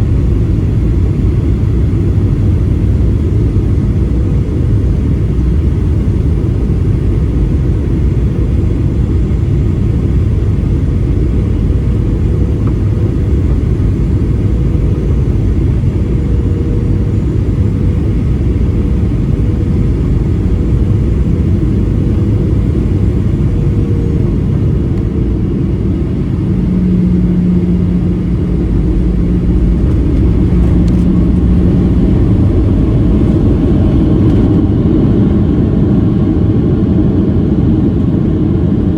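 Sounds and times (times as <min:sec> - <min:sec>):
aircraft cabin engine rumble: 0:00.0 - 0:38.9
faint hum: 0:00.0 - 0:38.9
low tone: 0:19.5 - 0:36.7
air rushing past fuselage: 0:24.5 - 0:35.7.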